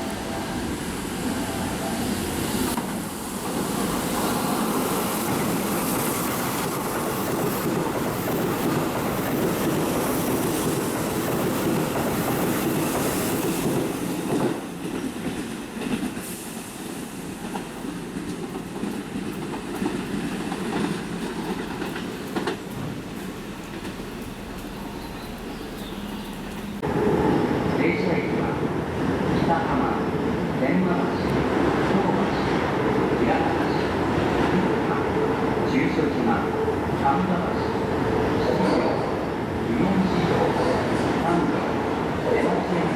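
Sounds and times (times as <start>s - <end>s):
wheels clacking over rail joints: 17.4s - 26.8s.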